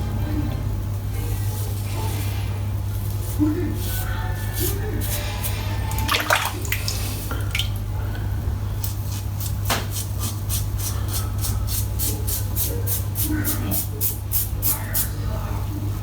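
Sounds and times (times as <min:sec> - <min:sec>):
water splashing and dripping: 0:06.0 - 0:07.8.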